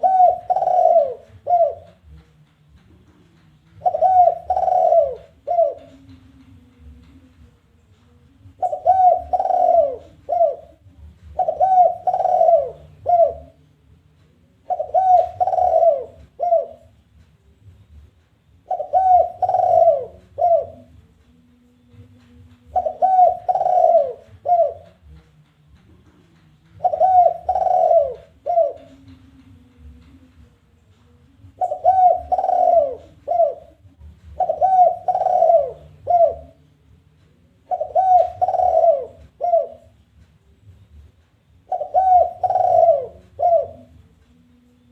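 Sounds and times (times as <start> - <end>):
dove cooing: 0.0 - 2.2, 3.7 - 7.0, 8.4 - 13.6, 14.6 - 17.0, 18.6 - 21.0, 21.9 - 25.2, 26.7 - 30.2, 31.4 - 36.7, 37.6 - 40.0, 41.6 - 44.9.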